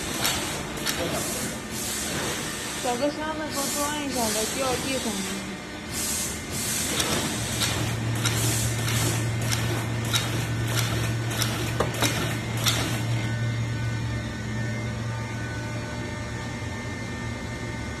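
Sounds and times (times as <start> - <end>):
sharp machine clicks: 0.0 - 1.5, 6.8 - 13.2
machine humming: 0.0 - 18.0.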